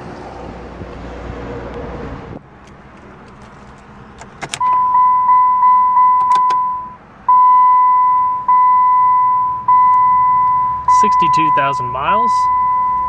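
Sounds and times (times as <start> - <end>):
car warning chime: 4.5 - 13.0.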